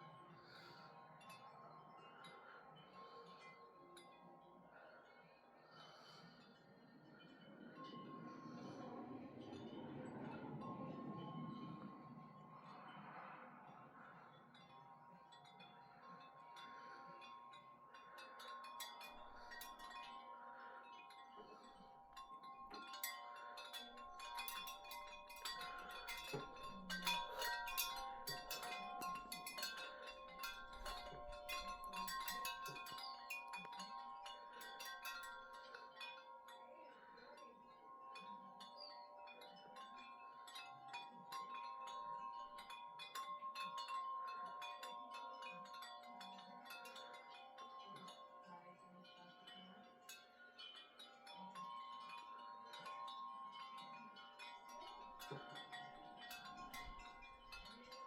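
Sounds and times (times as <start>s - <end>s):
wind chimes ringing: 0.0s - 58.0s.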